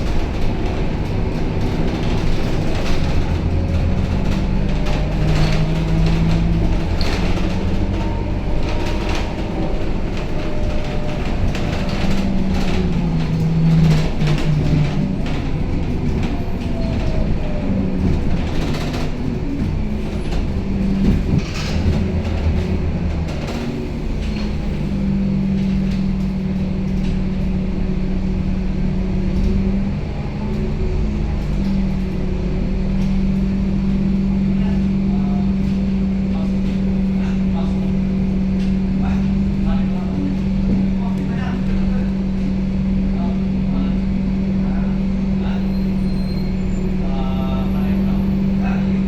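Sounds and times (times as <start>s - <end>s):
rattles and knocks from bus body: 0.0s - 34.4s
bus diesel engine running: 0.0s - 49.0s.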